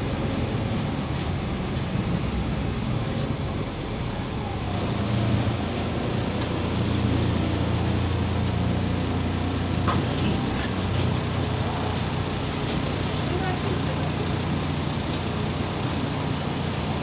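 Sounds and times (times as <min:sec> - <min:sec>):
bus engine low hum: 0:00.0 - 0:17.0.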